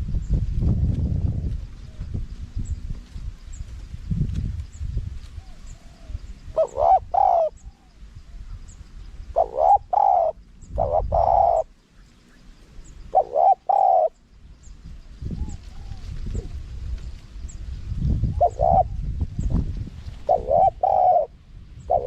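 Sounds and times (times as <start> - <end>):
dove cooing: 5.4 - 7.9, 9.3 - 11.8, 13.1 - 14.2, 15.3 - 16.6, 18.2 - 19.1, 20.1 - 22.0.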